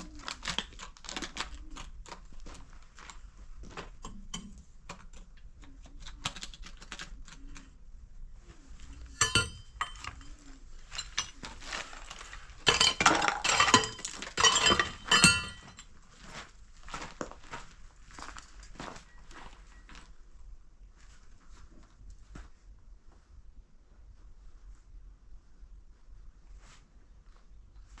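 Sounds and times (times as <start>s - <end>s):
hard objects clinking and clattering: 8.8s - 15.9s.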